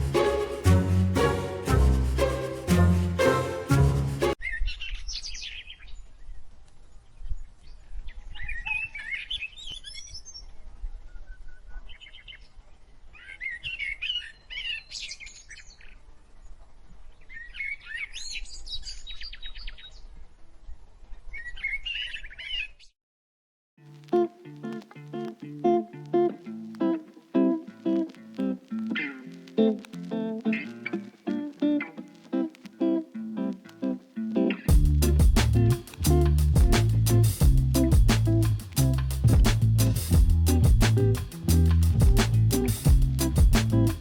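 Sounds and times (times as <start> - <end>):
background music: 0.0 - 4.4
low steady rumble: 34.7 - 44.0.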